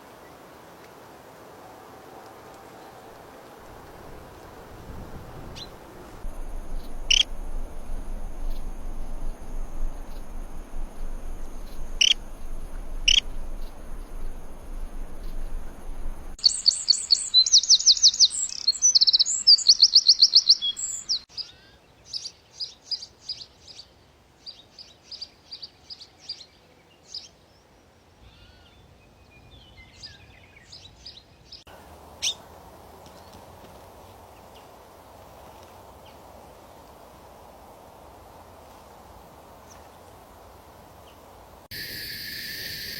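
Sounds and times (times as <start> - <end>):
background hiss: 0.0 - 21.5, 31.6 - 42.9
small birds chirping: 5.5 - 27.3, 41.7 - 42.9.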